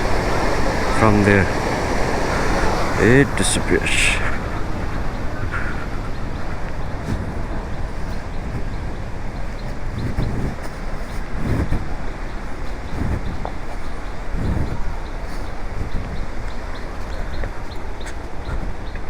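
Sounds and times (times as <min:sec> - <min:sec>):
waterfall rushing: 0:00.0 - 0:13.4.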